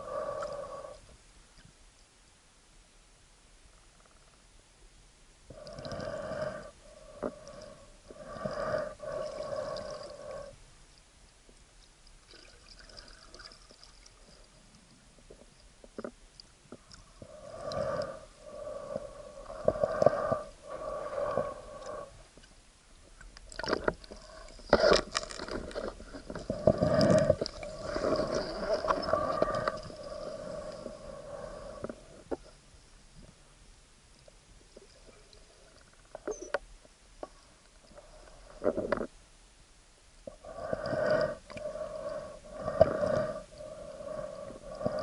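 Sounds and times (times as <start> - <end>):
underwater water swishes: 12.0 - 32.7.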